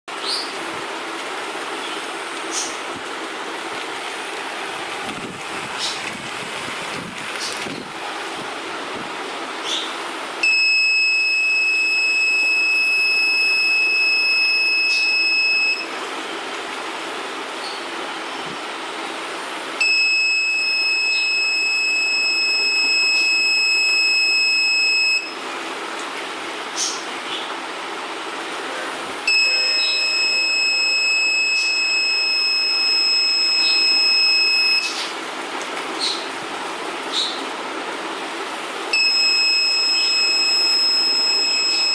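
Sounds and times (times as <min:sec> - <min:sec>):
high-pitched warning buzzer: 0:10.4 - 0:15.9, 0:19.8 - 0:25.4, 0:29.3 - 0:35.1, 0:38.9 - 0:41.9.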